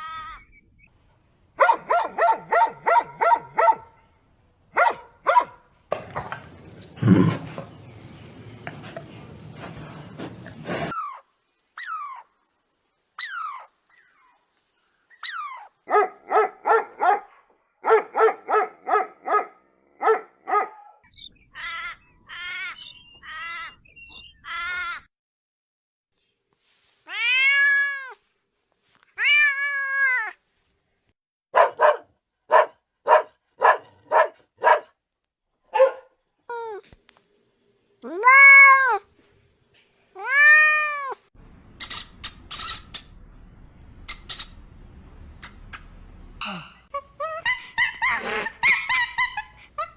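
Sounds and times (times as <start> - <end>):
cats meowing: 27.1 - 28.2, 29.2 - 30.4, 40.2 - 41.2.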